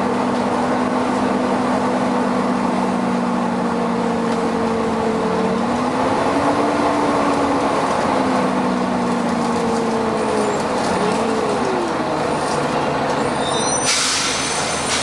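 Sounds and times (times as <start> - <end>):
bus engine: 0.0 - 15.0.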